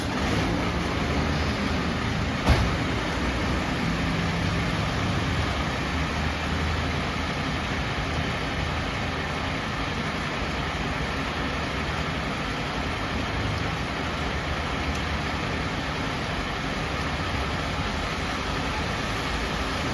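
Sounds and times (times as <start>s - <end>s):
diesel engine running: 0.0s - 12.7s
steady rain falling: 0.0s - 19.9s.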